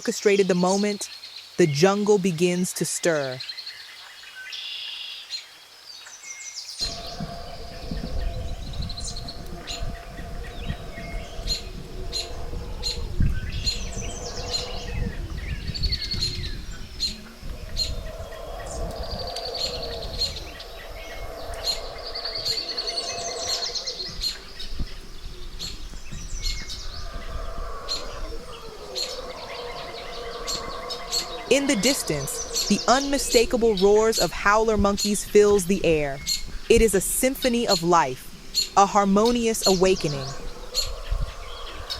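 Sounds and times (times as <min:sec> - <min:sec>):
birds chirping and trilling: 0:00.0 - 0:41.9
distant howler monkeys roaring: 0:06.8 - 0:34.2, 0:39.8 - 0:41.9
low rumbling noise: 0:06.8 - 0:41.9.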